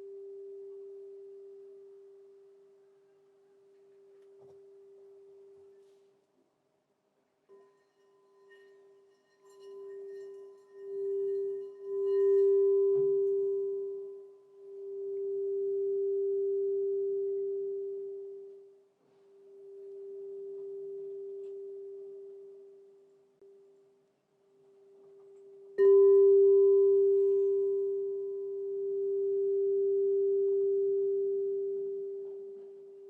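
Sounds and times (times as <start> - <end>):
crystal singing bowl ringing: 7.5 - 23.8, 24.8 - 33.0.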